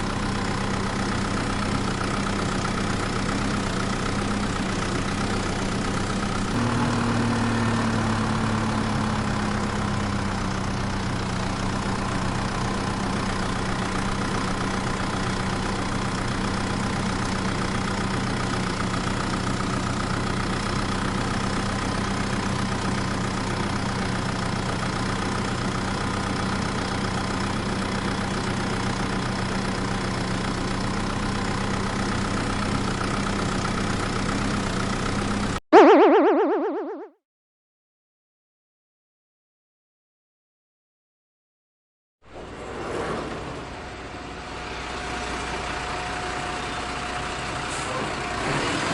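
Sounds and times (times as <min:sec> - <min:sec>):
vehicle engine idling: 0:00.0 - 0:35.5
springy tone: 0:35.7 - 0:37.1.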